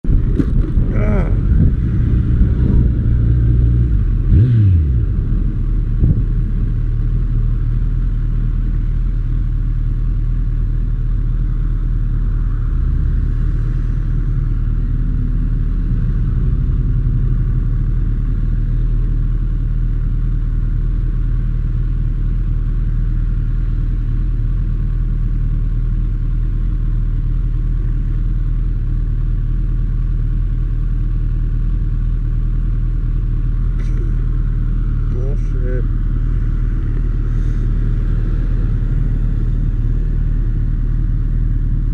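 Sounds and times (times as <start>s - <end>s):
motorcycle engine idling: 0.1s - 41.9s.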